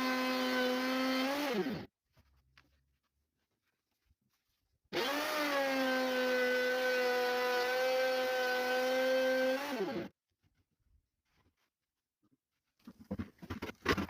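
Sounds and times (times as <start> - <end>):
power tool motor whine: 0.0 - 1.9, 4.9 - 10.1.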